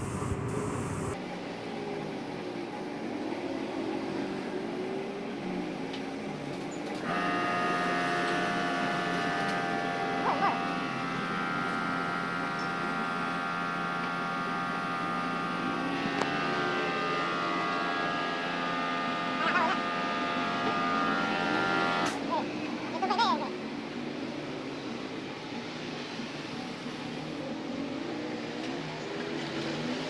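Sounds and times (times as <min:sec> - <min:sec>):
air compressor whine and hum: 0:00.0 - 0:05.4, 0:06.0 - 0:22.7.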